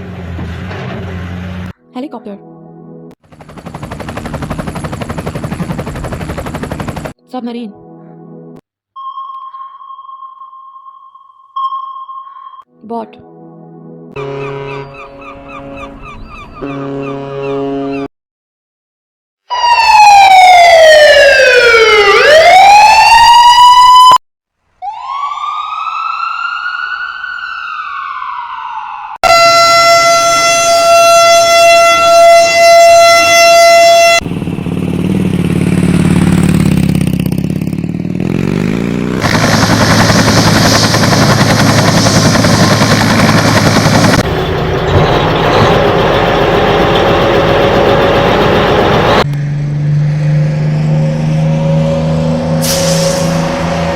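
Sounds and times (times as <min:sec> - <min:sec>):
engine and road noise: 0:00.0 - 0:01.8, 0:33.2 - 0:53.9
siren gliding in pitch: 0:19.5 - 0:24.2, 0:24.8 - 0:34.2, 0:47.3 - 0:53.9.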